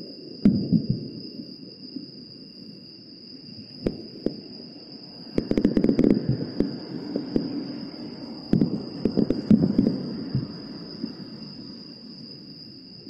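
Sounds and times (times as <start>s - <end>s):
insects trilling: 0.0s - 13.0s
rolling rumble: 5.4s - 11.8s
distant fireworks bangs: 8.5s - 10.6s.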